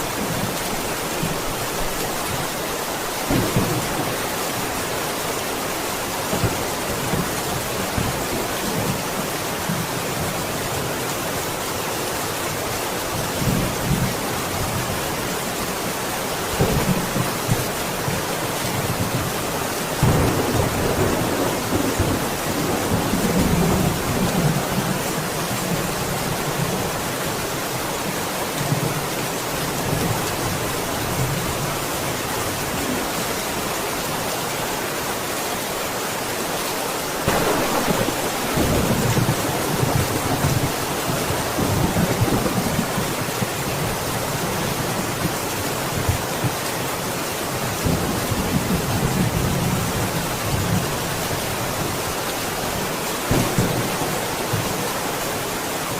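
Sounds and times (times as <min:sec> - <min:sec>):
heavy rain falling: 0:00.0 - 0:55.9
thunder rumbling: 0:03.3 - 0:04.6, 0:20.0 - 0:25.9, 0:37.2 - 0:43.5, 0:53.2 - 0:55.1.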